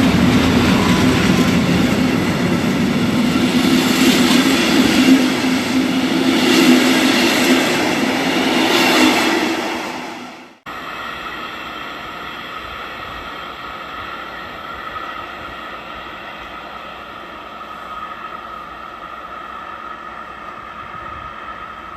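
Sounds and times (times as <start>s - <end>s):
train running hiss and hum: 0.0s - 21.9s.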